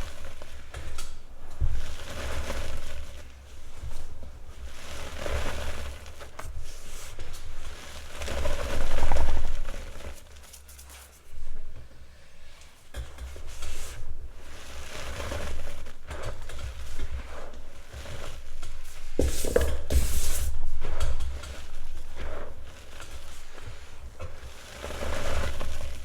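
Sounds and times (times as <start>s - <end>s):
chalk crunching and scraping: 4.6s - 11.4s, 13.4s - 26.0s.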